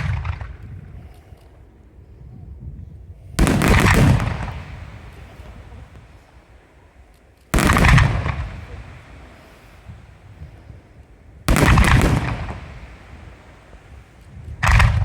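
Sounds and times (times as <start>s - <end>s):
firework bang: 0.0s - 1.1s, 3.4s - 6.6s, 7.5s - 15.0s.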